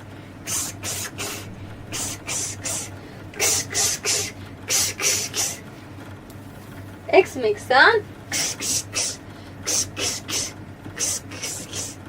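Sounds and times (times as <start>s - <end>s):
person making hissing ks sounds: 0.0s - 5.7s, 8.3s - 12.0s.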